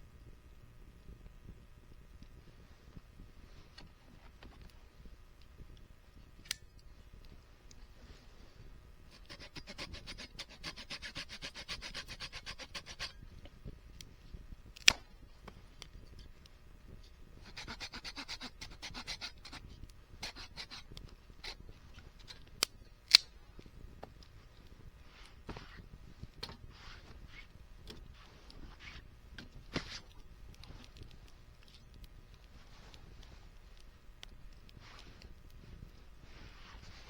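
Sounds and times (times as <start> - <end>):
rasping scraping on wood: 9.1 - 13.2, 17.5 - 19.6, 20.2 - 21.6.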